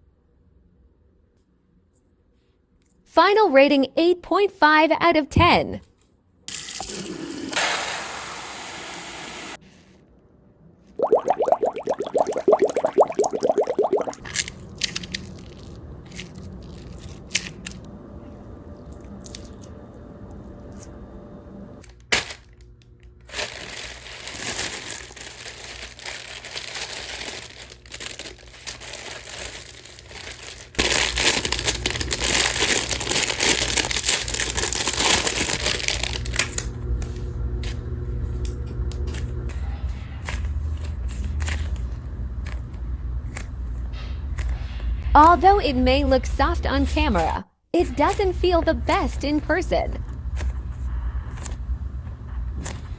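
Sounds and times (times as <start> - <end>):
plastic packaging crinkling: 23.2 - 37.2.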